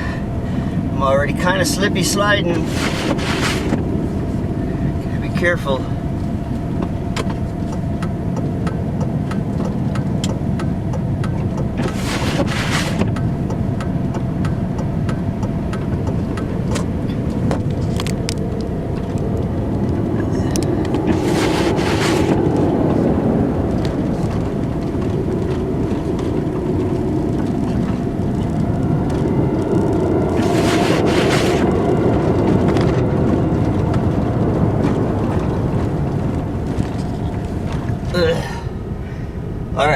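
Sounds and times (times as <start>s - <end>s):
truck engine and road noise: 0.0s - 39.9s
short swishes: 11.8s - 13.0s, 21.1s - 22.4s.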